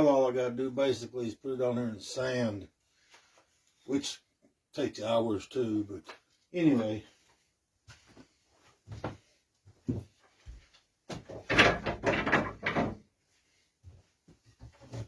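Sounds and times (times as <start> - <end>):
wooden pieces rattling and scraping: 11.2 - 13.0
wooden pieces knocking: 11.3 - 13.0.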